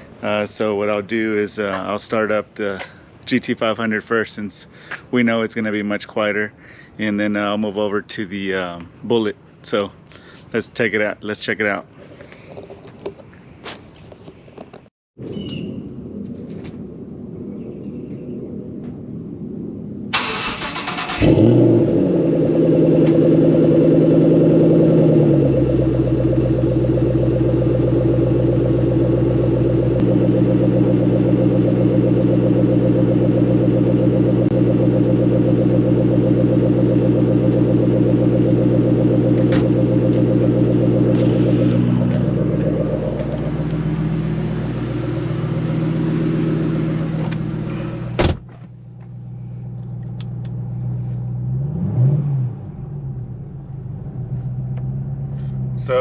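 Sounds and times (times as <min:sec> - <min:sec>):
car engine revving: 0:20.2 - 0:48.2, 0:49.9 - 0:56.0.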